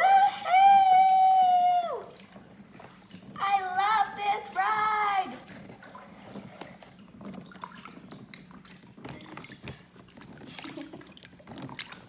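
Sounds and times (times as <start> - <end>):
water trickling and splashing: 2.0 - 12.0.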